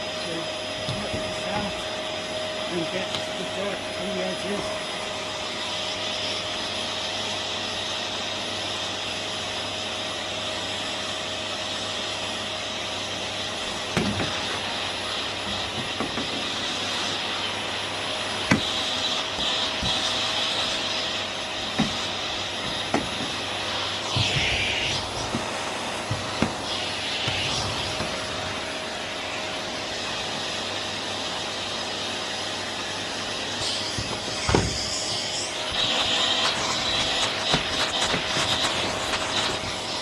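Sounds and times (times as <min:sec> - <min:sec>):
vacuum cleaner whining: 0:00.0 - 0:40.0
sharp knocks: 0:21.7 - 0:23.4, 0:33.9 - 0:35.0.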